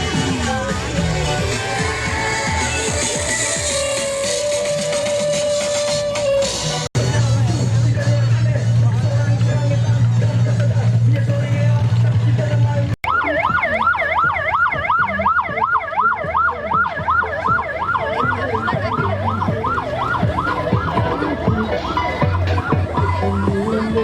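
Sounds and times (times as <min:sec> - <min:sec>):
heavy bass music: 0:00.0 - 0:24.0
electronic yelp siren: 0:13.0 - 0:24.0.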